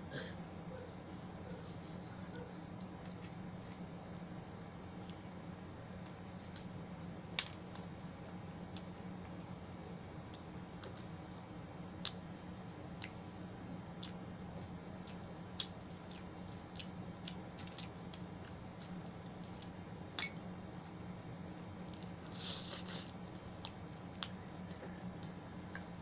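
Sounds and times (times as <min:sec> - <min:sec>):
steady low hum: 0:00.0 - 0:26.0
person chewing wetly: 0:12.9 - 0:21.0.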